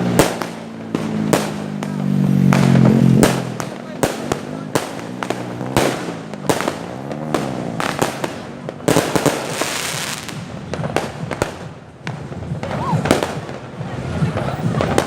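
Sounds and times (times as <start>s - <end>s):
fireworks bangs and cracks: 0.0s - 15.0s.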